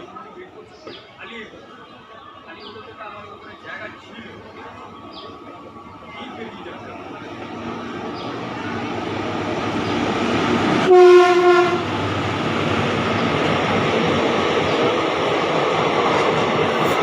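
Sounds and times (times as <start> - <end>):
train rolling past: 0.0 - 17.0
train clattering: 2.7 - 17.0
train horn blast: 10.8 - 12.0.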